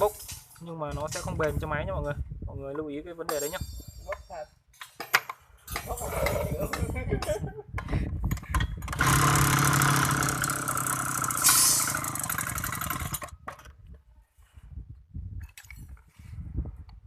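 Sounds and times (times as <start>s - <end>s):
two-stroke trimmer engine running: 8.8s - 13.4s.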